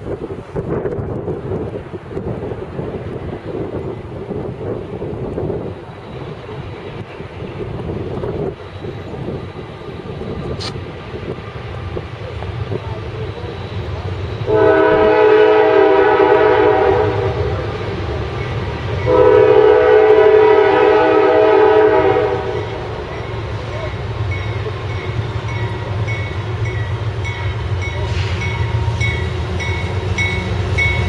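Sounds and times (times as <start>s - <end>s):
train engines rumbling: 0.0s - 31.0s
locomotive air horn blasts: 14.4s - 17.6s, 19.0s - 23.0s.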